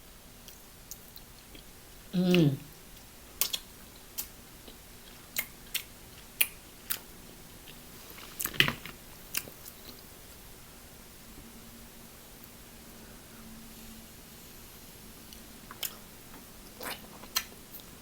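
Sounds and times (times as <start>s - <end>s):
chewing mouth clicks and smacks: 0.4s - 1.7s, 3.0s - 8.5s, 15.3s - 16.0s, 16.8s - 17.9s.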